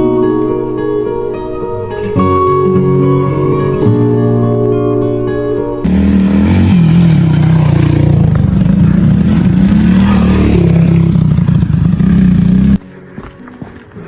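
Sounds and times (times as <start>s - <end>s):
motor engine running: 5.9s - 12.8s.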